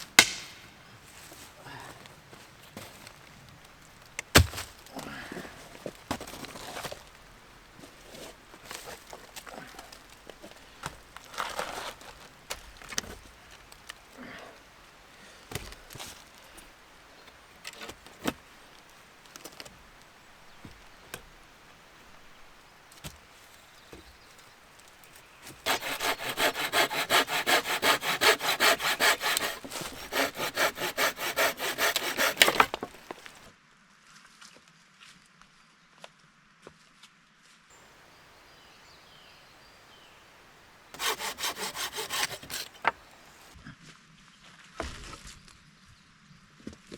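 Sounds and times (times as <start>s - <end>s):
wood knocking and crackling: 0.0s - 0.8s, 2.7s - 14.0s, 23.8s - 33.5s, 40.9s - 43.5s
hand saw cutting wood: 0.2s - 0.6s, 4.3s - 5.1s, 7.9s - 13.2s, 25.4s - 33.5s, 40.7s - 43.6s.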